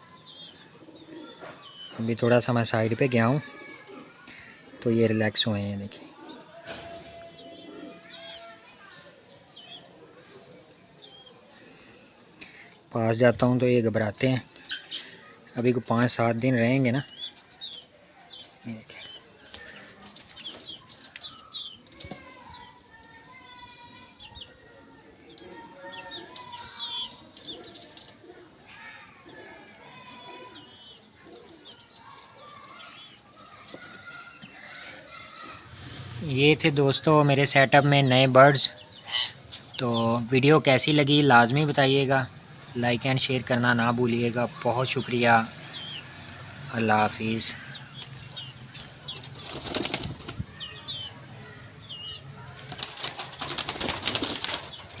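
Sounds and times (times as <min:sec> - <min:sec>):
parrots flapping wings: 0:49.2 - 0:50.4, 0:52.6 - 0:55.0.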